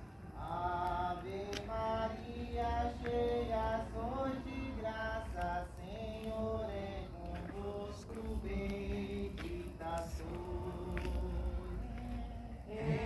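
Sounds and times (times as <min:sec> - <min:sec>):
voices singing a hymn: 0:00.0 - 0:13.0.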